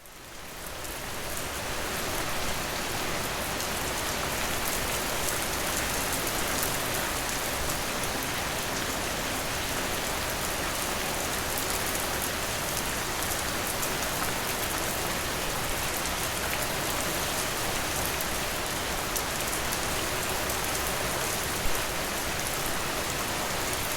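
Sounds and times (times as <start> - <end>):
rain falling against a window: 0.0 - 23.9.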